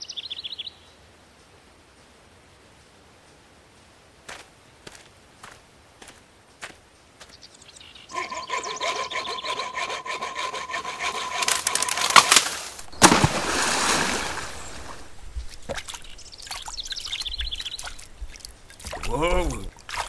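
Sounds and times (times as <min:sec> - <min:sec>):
wood creaking and rubbing: 0:08.1 - 0:12.5
wood cracking: 0:09.8 - 0:16.7
water splashing: 0:10.8 - 0:20.0.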